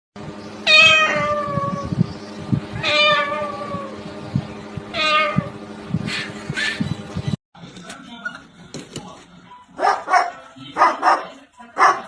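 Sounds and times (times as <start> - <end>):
cat meowing: 0.7 - 1.9, 2.8 - 4.0, 4.9 - 5.5.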